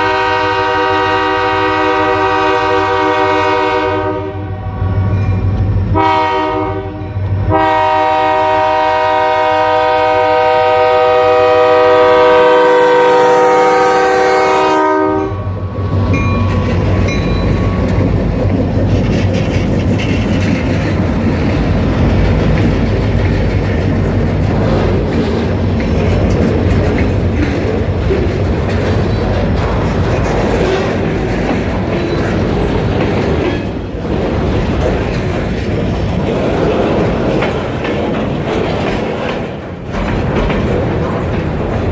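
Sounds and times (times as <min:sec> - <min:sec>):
locomotive air horn blasts: 0:00.0 - 0:05.1, 0:05.9 - 0:15.6
train rumble and wheel clatter: 0:00.0 - 0:41.9.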